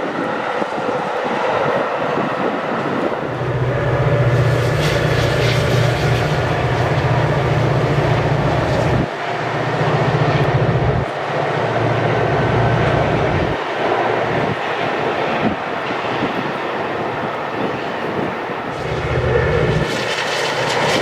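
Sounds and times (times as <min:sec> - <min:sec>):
train rumbling past: 0:00.0 - 0:21.0
pulsing low drone: 0:02.8 - 0:14.5, 0:18.7 - 0:21.0.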